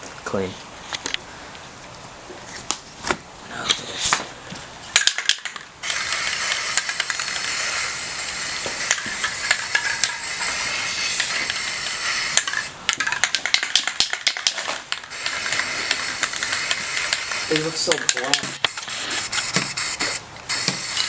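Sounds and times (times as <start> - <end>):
spray paint can hissing: 5.0 - 21.0.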